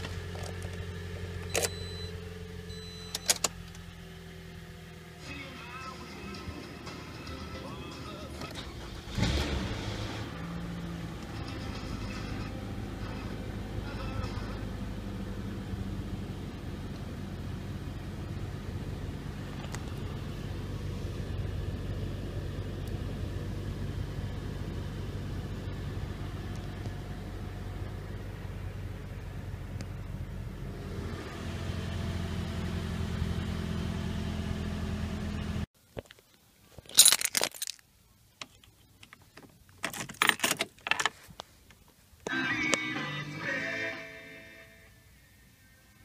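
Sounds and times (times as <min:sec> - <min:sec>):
car engine idling: 0:00.0 - 0:35.7
keys jangling: 0:36.9 - 0:37.8.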